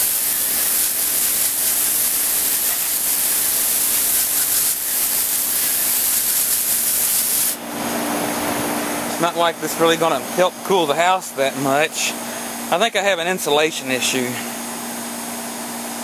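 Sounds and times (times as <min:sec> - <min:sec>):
hose spraying water hissing: 0:00.0 - 0:07.6.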